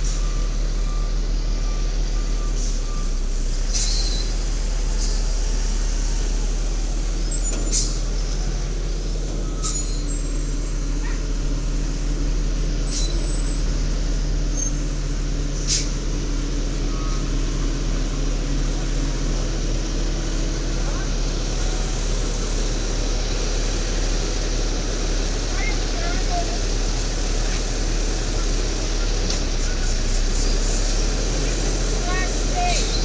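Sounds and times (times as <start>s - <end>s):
garbage truck engine running: 0.0s - 33.0s
short sharp air hisses: 15.7s - 16.0s.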